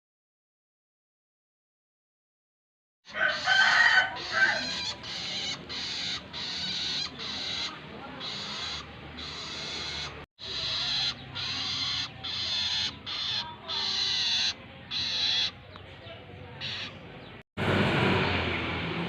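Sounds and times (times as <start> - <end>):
shrike harsh rasping calls: 3.1 - 15.8, 16.6 - 17.1.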